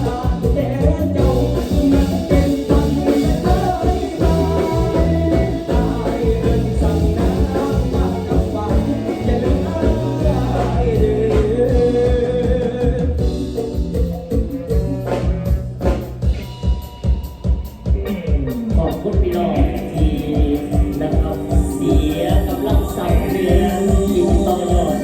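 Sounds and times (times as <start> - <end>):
person singing: 0.0 - 13.8, 18.0 - 25.0
bass: 0.0 - 25.0
drums: 0.0 - 25.0.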